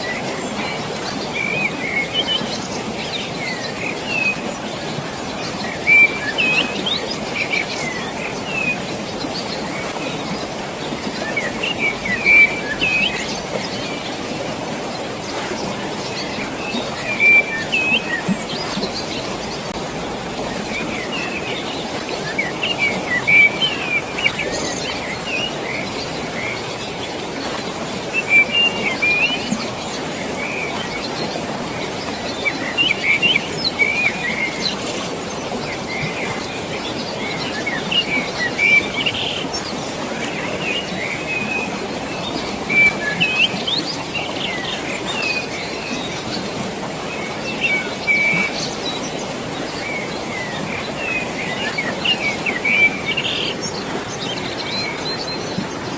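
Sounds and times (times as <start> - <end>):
birds chirping: 0.0 - 55.9
rushing water: 0.0 - 55.9.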